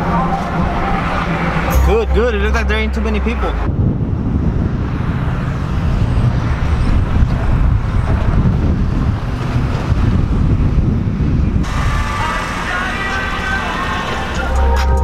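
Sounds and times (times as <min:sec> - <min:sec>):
pitched sound: 0:00.0 - 0:04.0
truck engine and road noise: 0:00.0 - 0:15.0
wind buffeting microphone: 0:02.7 - 0:14.4.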